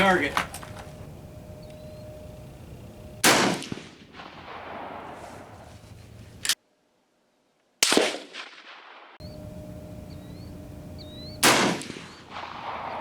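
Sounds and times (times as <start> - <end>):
rifle shots with echo: 3.2 - 5.6, 7.8 - 9.2, 11.4 - 13.0.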